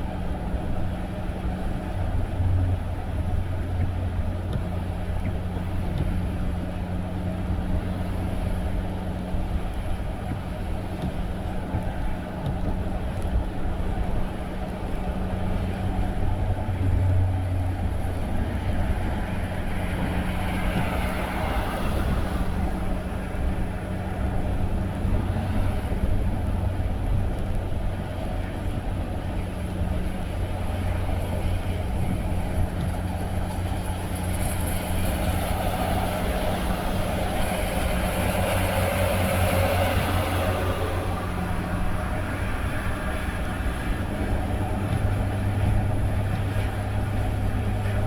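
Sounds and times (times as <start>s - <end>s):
tyre and road noise: 0.0s - 48.0s
car engine humming: 15.0s - 48.0s.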